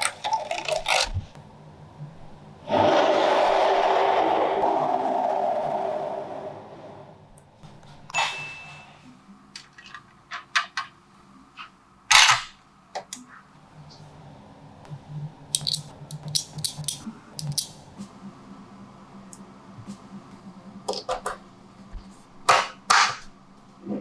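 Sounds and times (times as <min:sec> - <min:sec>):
magnetic balls clicking together: 0:15.6 - 0:17.8.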